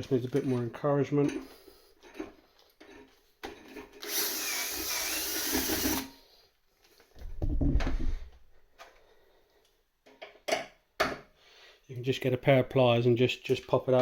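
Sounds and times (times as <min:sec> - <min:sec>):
electric drill drilling: 0:04.0 - 0:06.2.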